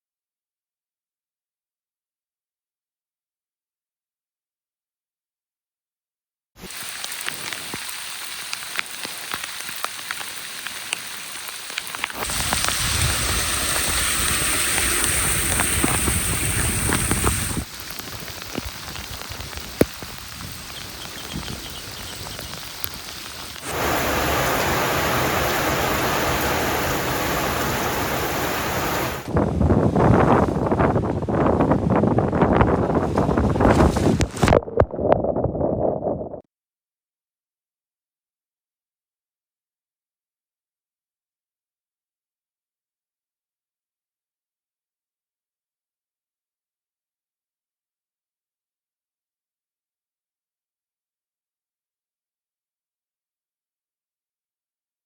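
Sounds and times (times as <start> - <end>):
steady rain: 6.7 - 29.3
wind rumble on microphone: 12.2 - 22.6, 27.7 - 36.4.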